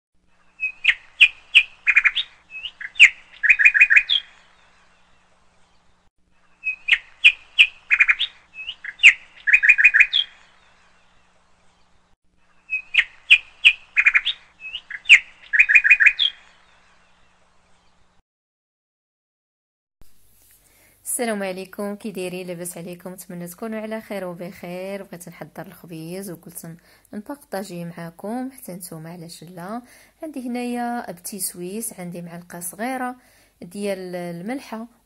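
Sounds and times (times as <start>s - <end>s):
birdsong chirps and trills: 0.3s - 18.2s.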